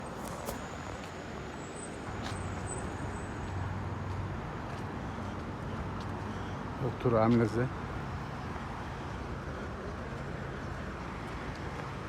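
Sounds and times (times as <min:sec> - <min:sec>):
tyre noise on road: 0:00.0 - 0:12.0.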